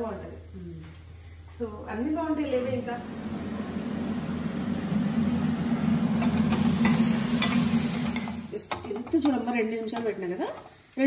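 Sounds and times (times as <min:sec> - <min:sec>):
low steady hum: 0:00.0 - 0:09.9
eggplant sizzling in a pan: 0:03.6 - 0:11.0
metal ladle scraping pan: 0:06.2 - 0:08.6.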